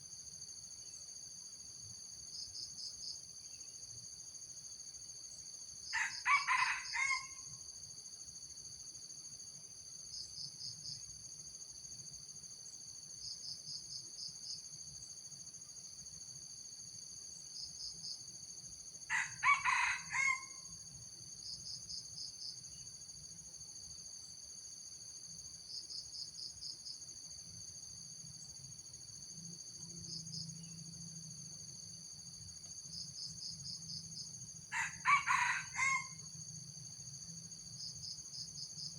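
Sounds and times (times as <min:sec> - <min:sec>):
high insect drone: 0:00.0 - 0:38.9
rapid insect chirps: 0:00.0 - 0:38.9
rooster crowing: 0:06.0 - 0:07.5, 0:19.1 - 0:20.7, 0:34.7 - 0:36.3.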